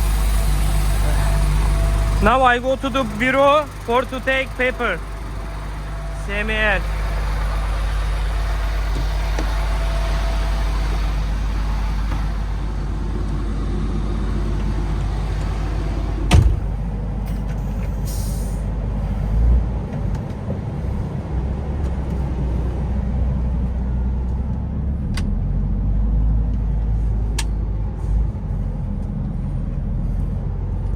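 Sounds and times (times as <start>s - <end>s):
truck diesel engine running: 0.0s - 30.9s
short hiss of air: 18.0s - 18.7s.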